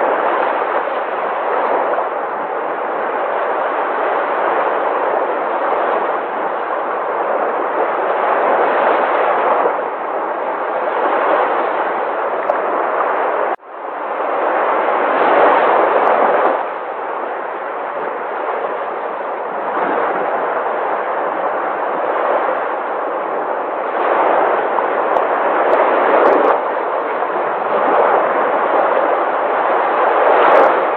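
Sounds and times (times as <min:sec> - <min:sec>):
sea waves breaking: 0:00.0 - 0:30.9.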